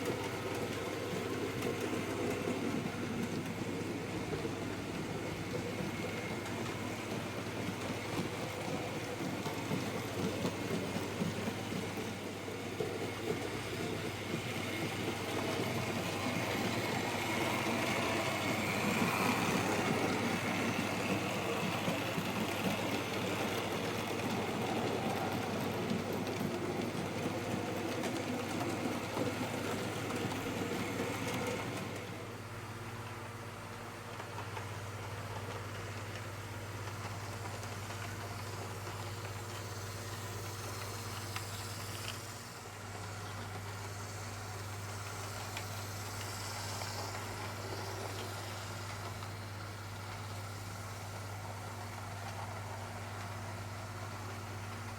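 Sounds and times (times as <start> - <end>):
model train rolling on track: 0.0 - 54.9.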